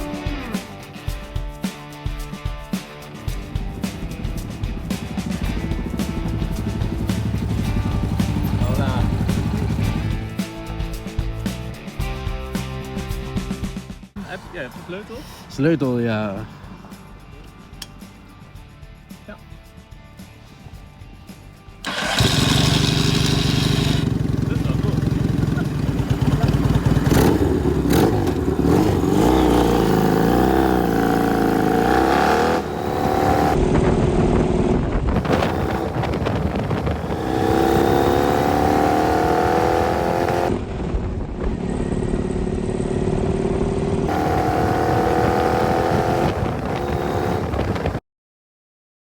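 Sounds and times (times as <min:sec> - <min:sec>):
motorcycle engine revving: 0:03.4 - 0:10.4, 0:21.8 - 0:40.7, 0:41.5 - 0:48.0.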